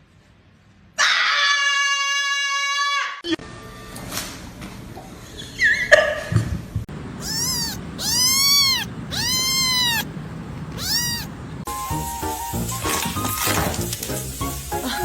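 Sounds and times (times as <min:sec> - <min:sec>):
cat meowing: 0:07.2 - 0:11.4.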